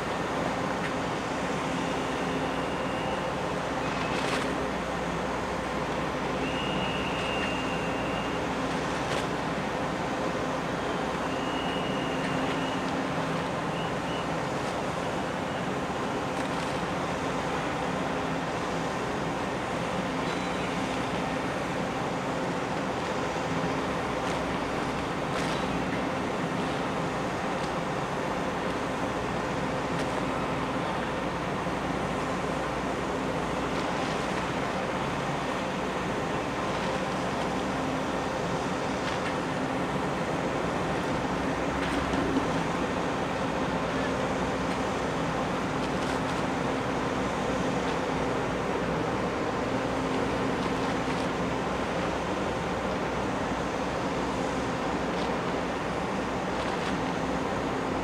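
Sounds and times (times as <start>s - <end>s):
ferry engines rumbling: 0.0s - 58.0s
water noise: 0.0s - 58.0s
wind: 0.0s - 58.0s
faint high whistle: 2.2s - 4.2s, 6.4s - 8.4s, 10.8s - 12.9s, 13.7s - 14.4s.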